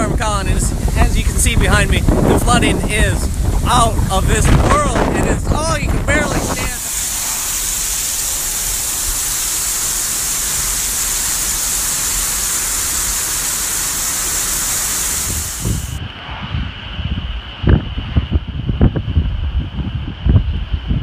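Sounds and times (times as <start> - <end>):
wind buffeting microphone: 0.0 - 13.3, 15.1 - 21.0
heavy rain pouring: 0.0 - 16.0.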